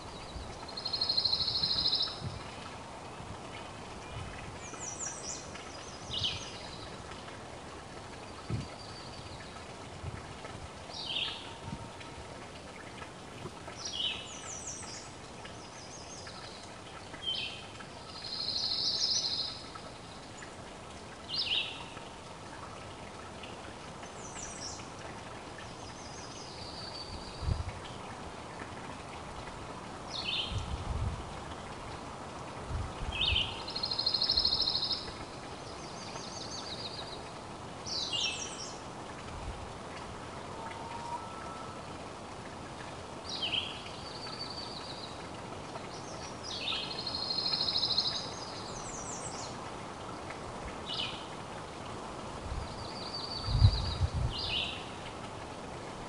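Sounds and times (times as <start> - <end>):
songbird singing: 0.0 - 7.4, 10.9 - 11.8, 13.7 - 20.6, 21.3 - 22.2, 25.6 - 28.0, 30.1 - 30.7, 33.1 - 38.8, 43.2 - 49.6, 52.6 - 55.0
steady outdoor hiss: 0.0 - 56.0.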